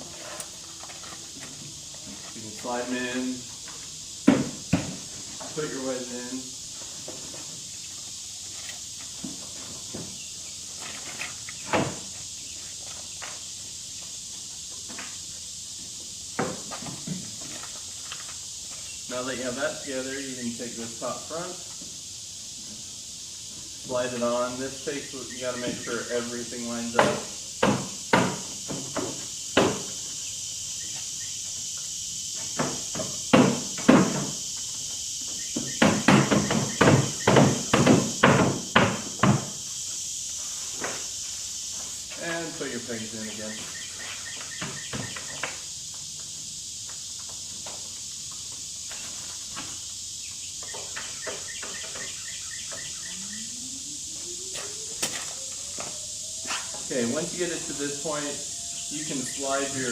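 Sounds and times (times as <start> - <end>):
steady high hiss: 0.0 - 59.9
bird chirping: 35.3 - 37.5, 43.2 - 45.6, 50.2 - 59.9
low rising tone: 53.1 - 56.8.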